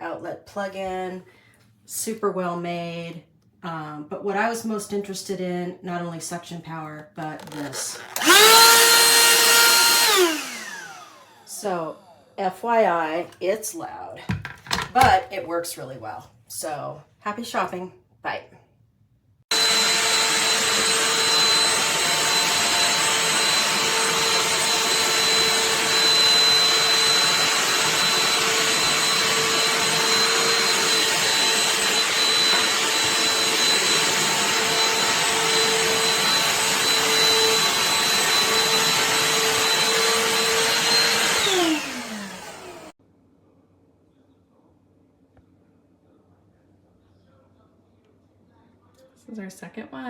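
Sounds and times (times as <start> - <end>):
handheld vacuum motor whine: 7.4 - 12.3, 19.5 - 43.0.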